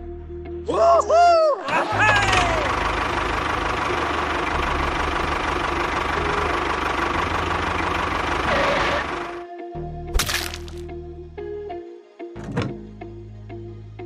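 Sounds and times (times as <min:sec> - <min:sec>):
engine idling with rattling knock: 0:02.2 - 0:09.4.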